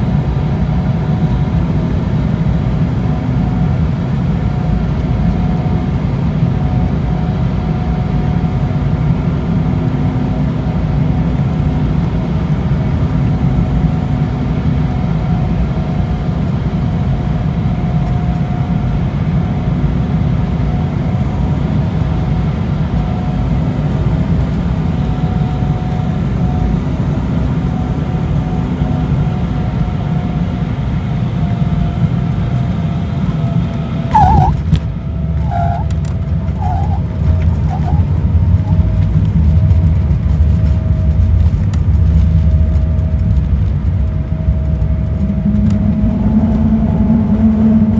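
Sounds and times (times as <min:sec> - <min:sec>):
airliner cabin rumble: 0:00.0 - 0:47.9
faint hum: 0:34.1 - 0:47.9.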